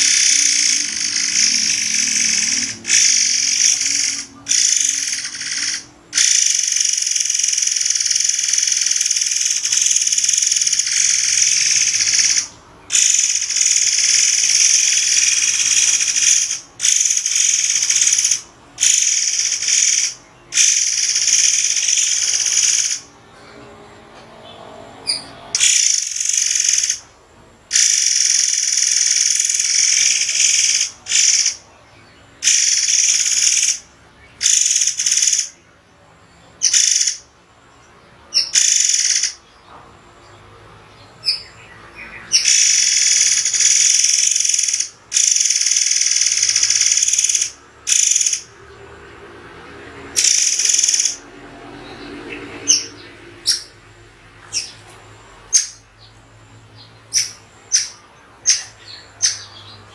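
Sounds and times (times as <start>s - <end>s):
songbird singing sharp bursts: 0.0s - 23.1s, 25.1s - 27.0s, 27.7s - 31.6s, 32.4s - 33.8s, 34.4s - 35.6s, 42.2s - 48.5s, 50.2s - 51.2s.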